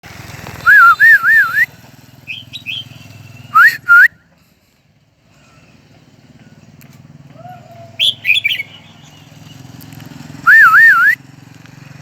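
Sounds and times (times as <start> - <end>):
songbird whistling song: 0.6 - 4.3, 7.5 - 9.8, 10.4 - 11.2
soft bird chirps: 2.3 - 3.5, 8.0 - 9.9.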